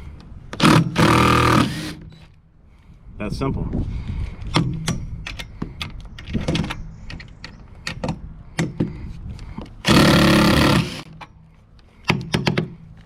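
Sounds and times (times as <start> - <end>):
impact driver hammering: 0.6 - 2.1, 9.9 - 11.1.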